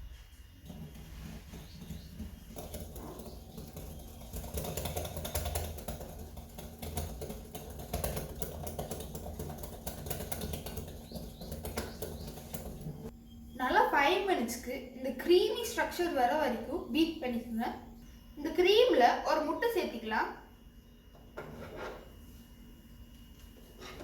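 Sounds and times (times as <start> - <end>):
low steady hum: 0.0 - 24.0
utensil scraping mixing bowl: 0.1 - 13.1.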